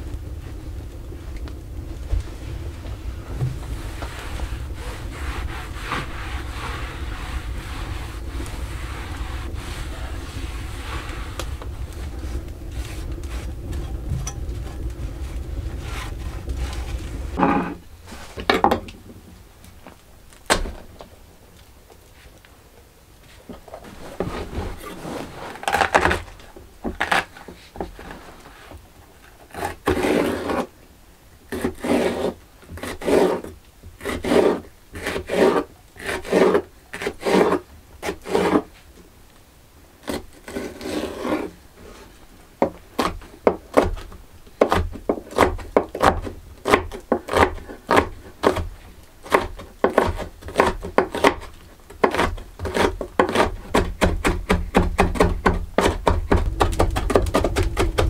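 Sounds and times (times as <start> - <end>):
rubbing strokes against wood: 0.0 - 18.5.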